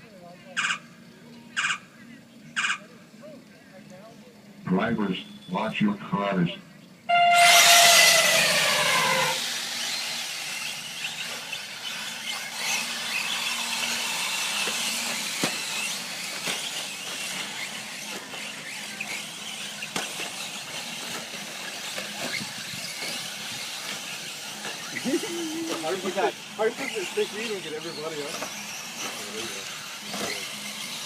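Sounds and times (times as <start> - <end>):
electric motors whining: 7.1 - 31.0
tyres hissing on dirt: 7.2 - 31.0.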